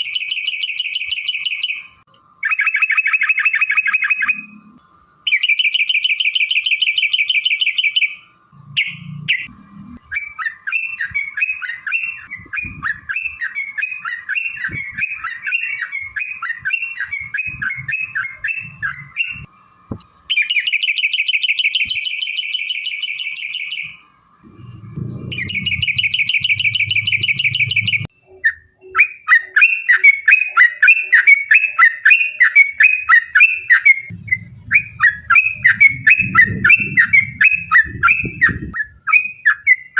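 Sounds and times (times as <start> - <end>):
bird singing buzzy trills: 0.0 - 39.9
bird chattering: 10.1 - 19.5, 24.7 - 39.9.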